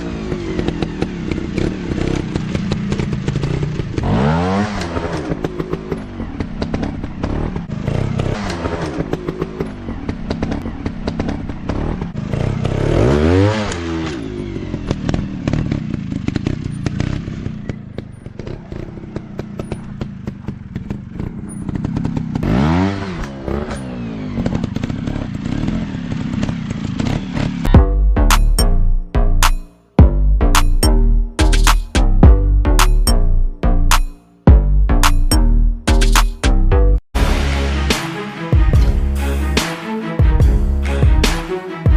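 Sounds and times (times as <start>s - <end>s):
dirt bike engine revving: 0.0s - 27.8s
engine clattering and knocks: 0.1s - 12.9s, 14.0s - 27.7s.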